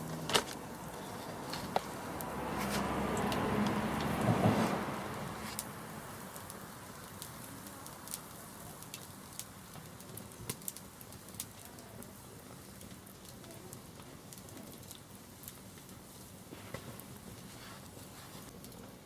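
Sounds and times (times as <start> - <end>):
bonfire crackling and popping: 0.0 - 19.0.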